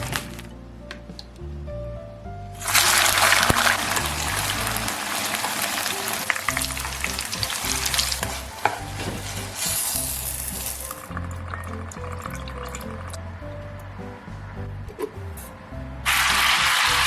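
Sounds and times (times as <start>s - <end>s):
food sizzling in hot oil: 2.6s - 11.1s, 16.1s - 17.0s
oil popping: 2.6s - 13.3s
spatula scraping pan: 6.5s - 10.8s.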